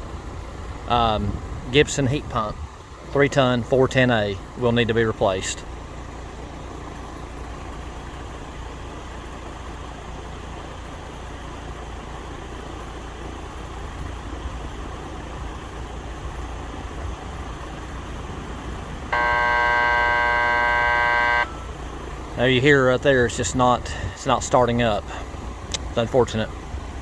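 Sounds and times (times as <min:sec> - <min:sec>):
heat pump compressor buzzing: 0:19.1 - 0:21.8.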